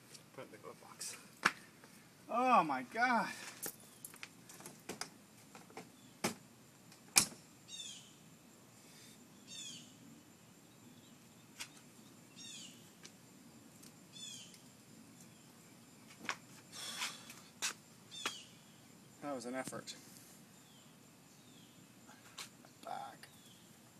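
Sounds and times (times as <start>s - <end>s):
bird chirping: 3.7s - 4.2s, 5.9s - 6.2s, 7.7s - 8.3s, 9.3s - 13.0s, 14.1s - 15.8s, 18.1s - 19.4s, 20.5s - 23.9s.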